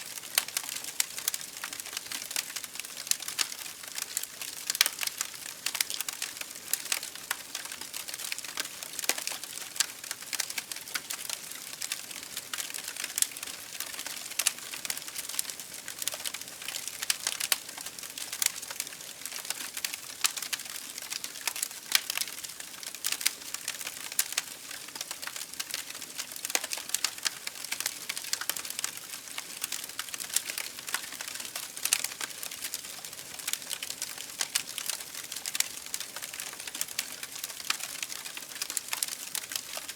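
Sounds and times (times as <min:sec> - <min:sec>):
campfire crackling and popping: 0:00.1 - 0:39.9.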